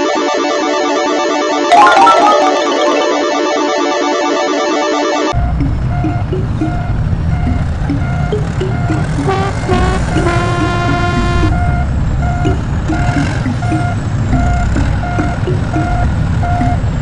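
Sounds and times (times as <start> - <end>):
short electronic beeps: 5.4 - 16.8
heavy vehicle engine rumbling: 5.4 - 17.0
horn-like tone: 5.9 - 16.8.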